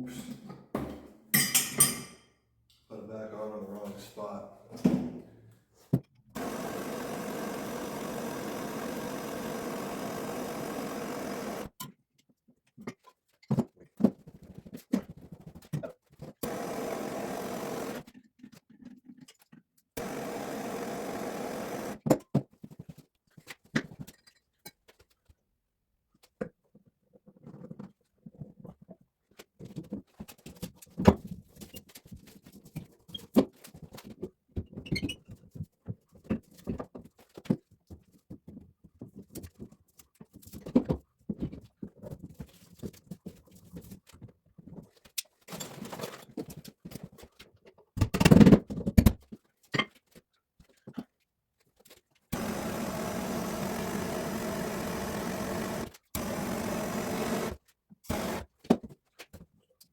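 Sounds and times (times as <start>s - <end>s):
small motor running: 6.4s - 11.7s, 16.4s - 18.0s, 20.0s - 22.0s, 52.4s - 58.5s.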